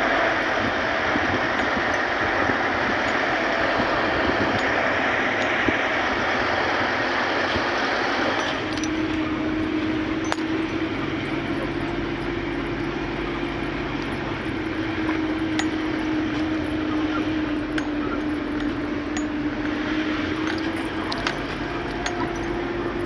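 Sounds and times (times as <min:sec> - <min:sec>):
vehicle engine and road noise: 0:00.0 - 0:23.0
light clicks and rattles: 0:08.4 - 0:23.0.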